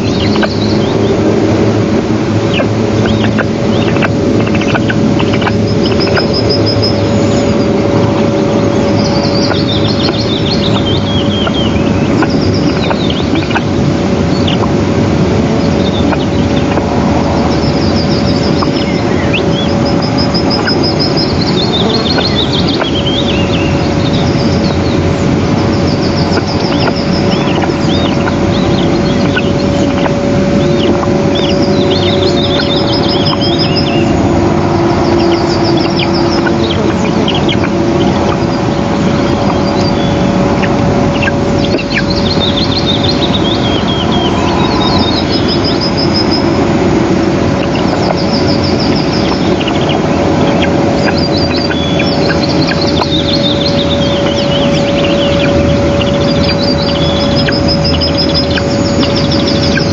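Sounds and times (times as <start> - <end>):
bird chirps and trills: 0.0 - 59.9
loud rushing noise: 0.0 - 59.9
low hum: 0.0 - 59.9.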